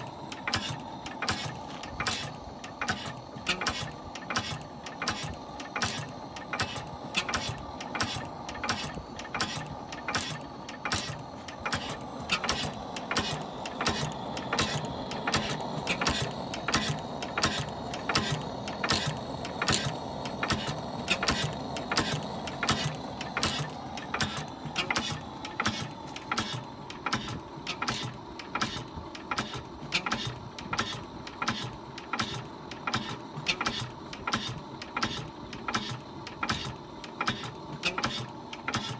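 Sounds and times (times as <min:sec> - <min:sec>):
oil engine running: 0:00.0 - 0:38.9
sharp regular clicks: 0:00.0 - 0:38.9.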